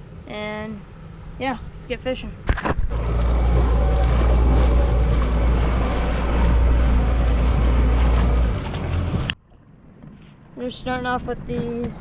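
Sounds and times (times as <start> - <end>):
wind rumbling on microphone: 1.2 - 12.0
boat motor running: 2.8 - 9.8.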